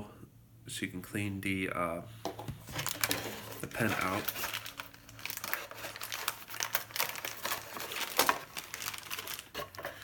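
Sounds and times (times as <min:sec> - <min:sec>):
packaging crinkling and rustling: 0:02.5 - 0:10.0.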